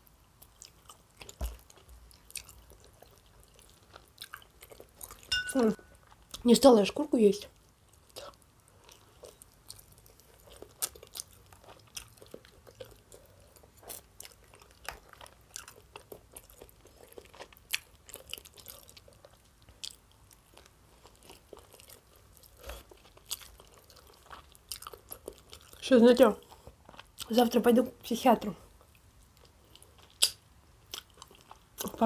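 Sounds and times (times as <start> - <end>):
person chewing and crunching: 0.4 - 6.4, 7.8 - 25.8, 26.4 - 27.4, 28.8 - 32.0.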